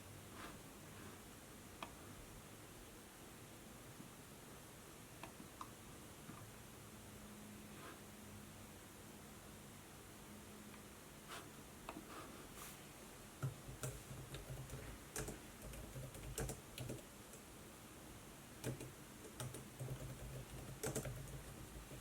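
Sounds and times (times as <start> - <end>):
faint steady hiss: 0.0 - 22.0
typing on laptop keyboard: 13.4 - 17.4, 18.6 - 22.0.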